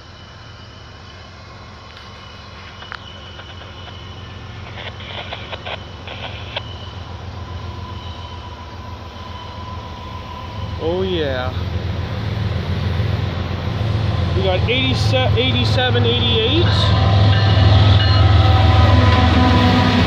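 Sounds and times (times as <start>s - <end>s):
locomotive engine rumble: 0.0s - 20.0s
sharp clicks: 4.6s - 6.8s.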